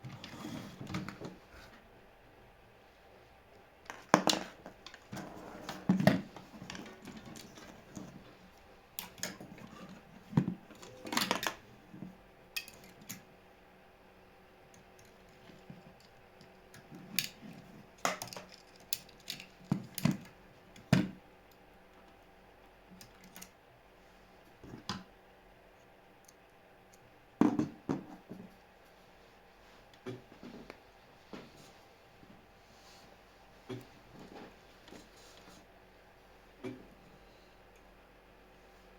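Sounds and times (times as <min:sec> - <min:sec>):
small parts and tools clattering: 0:03.9 - 0:08.3, 0:12.6 - 0:13.2, 0:15.0 - 0:20.3.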